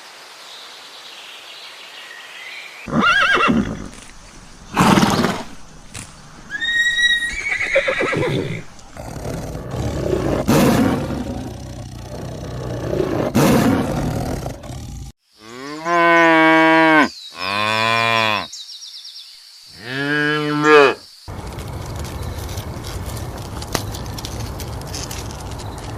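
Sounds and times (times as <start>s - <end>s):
horse whinnying: 2.9s - 4.0s, 6.5s - 15.0s
cow mooing: 9.0s - 18.5s.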